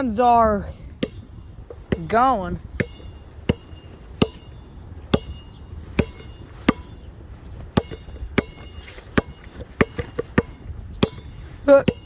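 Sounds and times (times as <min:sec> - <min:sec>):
wind rumble on microphone: 0:00.0 - 0:12.0
footsteps: 0:05.8 - 0:10.6.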